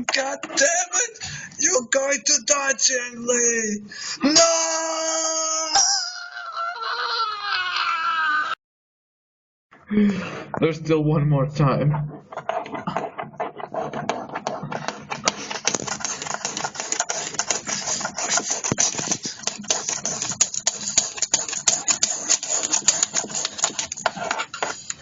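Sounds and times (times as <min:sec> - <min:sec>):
rapid irregular clicking: 0:12.1 - 0:25.0.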